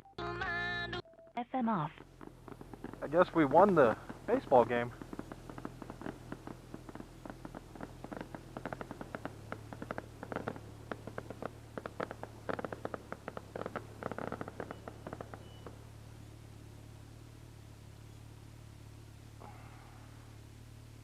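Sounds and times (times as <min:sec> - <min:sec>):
motorcycle engine hum: 0:00.8 - 0:21.0
fireworks popping and crackling: 0:01.8 - 0:16.7.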